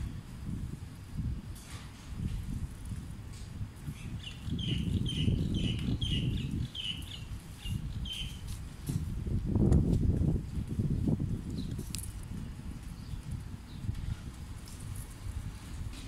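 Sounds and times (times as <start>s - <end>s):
bird chirping: 4.0s - 8.4s.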